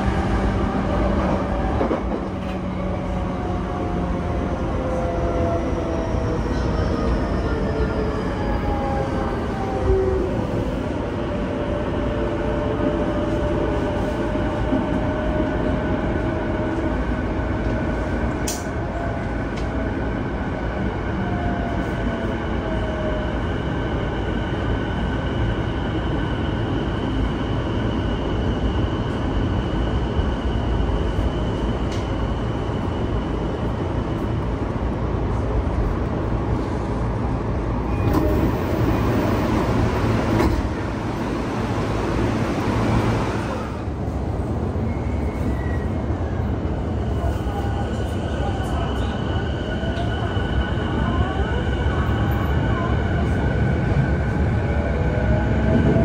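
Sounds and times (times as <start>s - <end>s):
train rolling rumble: 0.0s - 56.0s
train doors opening click: 18.4s - 18.8s, 37.9s - 38.6s, 40.3s - 40.8s.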